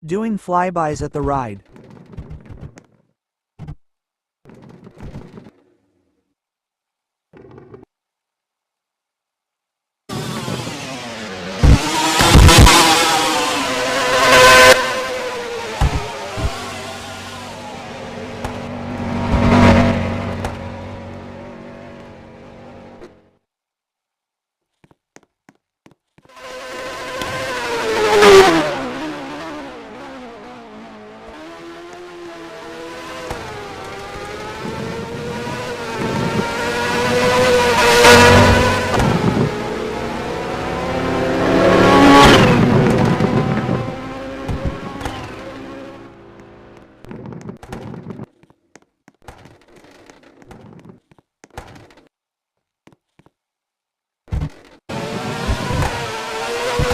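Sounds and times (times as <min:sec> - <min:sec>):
car driving off: 0:10.1 - 0:23.3, 0:26.4 - 0:47.1, 0:54.9 - 0:56.9
car driving past: 0:10.6 - 0:23.0.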